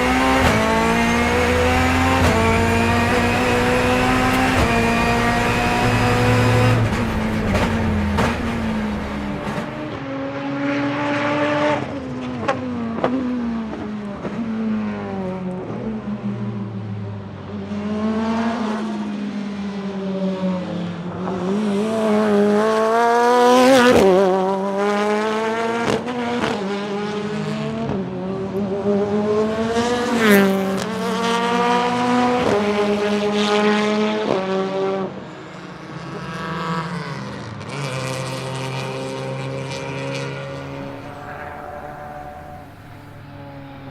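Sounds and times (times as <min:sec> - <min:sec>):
race car engine revving: 0:00.0 - 0:11.9, 0:38.8 - 0:43.9
sharp exhaust cracks: 0:40.7 - 0:43.9.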